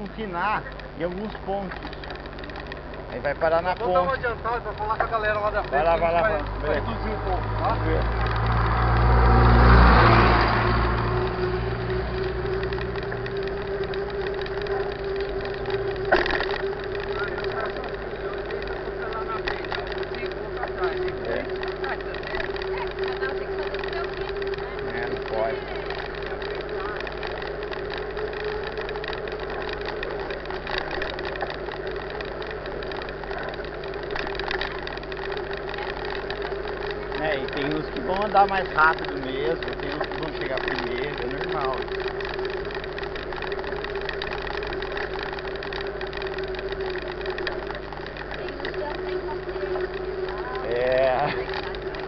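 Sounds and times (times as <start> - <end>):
mountain bike rolling: 0.0 - 52.0
vehicle engine running: 0.0 - 52.0.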